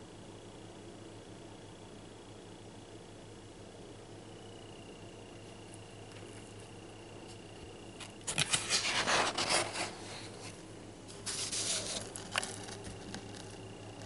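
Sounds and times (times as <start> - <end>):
paper pages rustling: 8.0 - 14.0.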